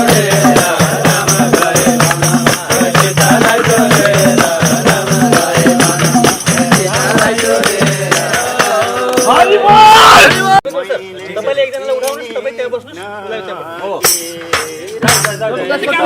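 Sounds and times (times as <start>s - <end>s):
tambourine jingles: 0.0s - 9.6s.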